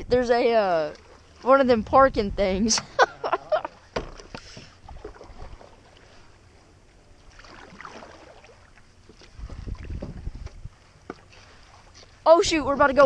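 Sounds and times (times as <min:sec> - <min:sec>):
wind rumble on microphone: 0:00.0 - 0:00.5, 0:01.6 - 0:02.8, 0:09.2 - 0:10.9
water stirring: 0:00.4 - 0:13.0
canoe knocking: 0:03.6 - 0:05.8.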